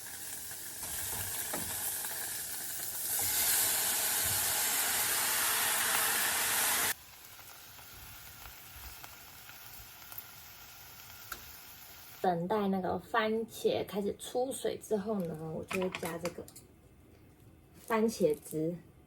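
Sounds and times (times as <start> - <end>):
food sizzling in hot oil: 0.0 - 12.2.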